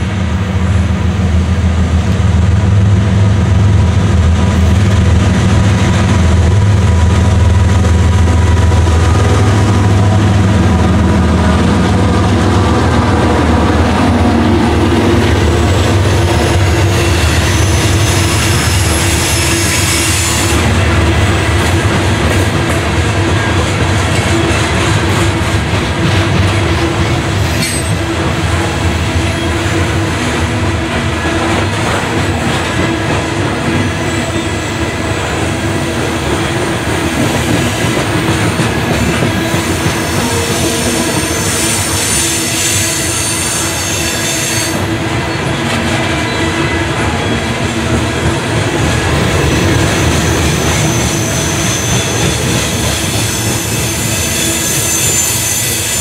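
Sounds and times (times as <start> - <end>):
diesel locomotive drone: 0.0 - 56.0
train cars rumbling: 0.0 - 56.0.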